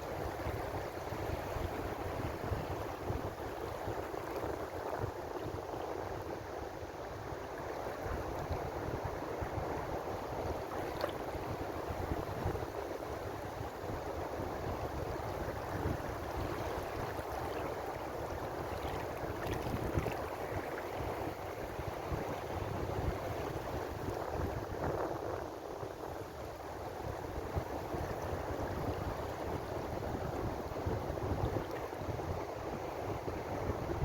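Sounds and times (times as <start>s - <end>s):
small water splashes: 18.6s - 21.0s.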